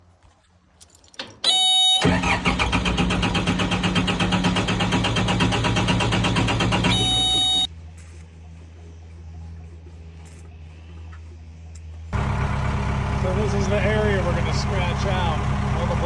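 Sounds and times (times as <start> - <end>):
diesel engine idling: 2.0 - 7.7, 12.2 - 16.0
starter cranking engine: 2.0 - 7.7, 12.2 - 16.0
warning buzzer: 6.7 - 7.7.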